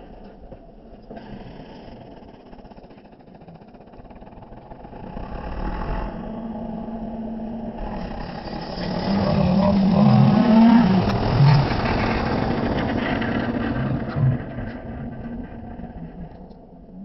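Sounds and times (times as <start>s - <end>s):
tractor engine revving: 7.8s - 16.1s.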